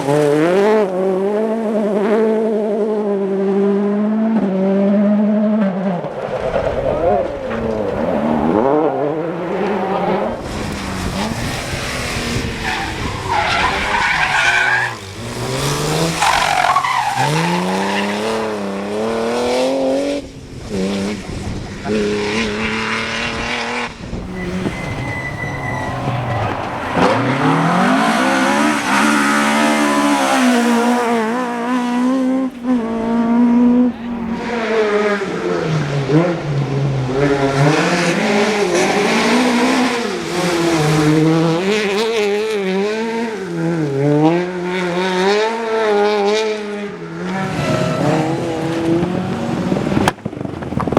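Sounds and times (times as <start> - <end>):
rally car engines revving: 0.0 - 50.9
tyres skidding: 9.5 - 19.2, 24.0 - 34.6, 47.3 - 50.9.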